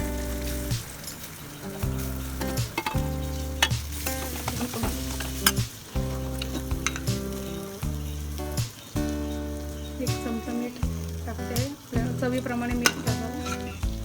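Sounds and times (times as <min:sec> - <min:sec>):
hot oil sizzling in a pan: 0:00.0 - 0:14.0
background music with held chords: 0:01.8 - 0:14.0
spoon clicking against pan: 0:12.8 - 0:13.8.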